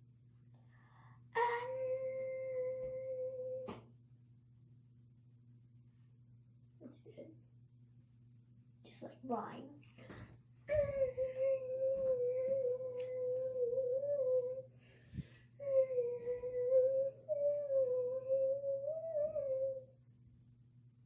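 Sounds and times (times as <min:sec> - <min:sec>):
girl singing held notes: 0:01.4 - 0:03.8, 0:10.7 - 0:14.7, 0:15.6 - 0:19.9.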